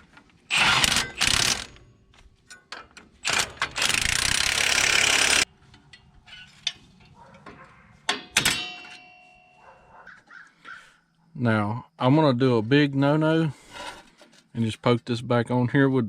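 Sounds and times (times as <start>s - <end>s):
pneumatic wrench running in bursts: 0.5s - 1.8s, 3.2s - 5.5s.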